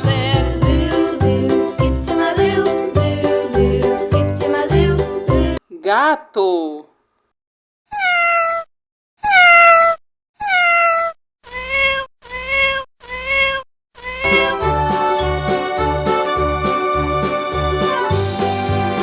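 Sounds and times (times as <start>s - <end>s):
children's music: 0.0s - 6.8s, 14.3s - 19.0s
cat meowing: 7.9s - 8.6s, 9.2s - 14.2s.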